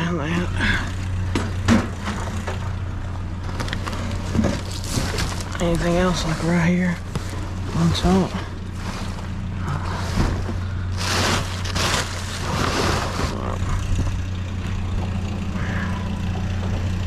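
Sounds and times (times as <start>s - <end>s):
vehicle engine idling: 0.0s - 17.0s
junk rustling and clattering: 0.6s - 17.0s.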